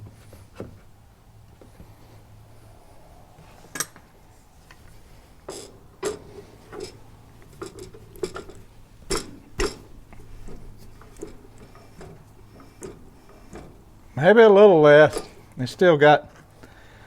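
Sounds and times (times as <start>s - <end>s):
steering metallic clunks and clicks: 5.5s - 14.2s, 15.1s - 15.6s.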